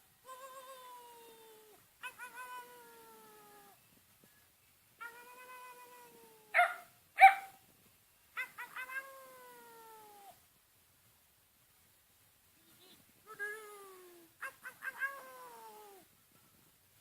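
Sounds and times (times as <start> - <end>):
dog howling: 2.0 - 3.8, 8.4 - 10.1, 14.4 - 16.0
dog barking: 6.5 - 7.6, 14.4 - 15.2.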